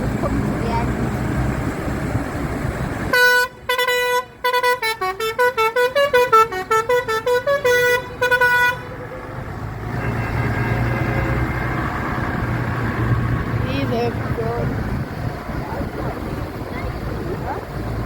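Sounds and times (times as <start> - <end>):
musical vehicle horn playing a tune: 3.1 - 9.0, 9.9 - 11.8.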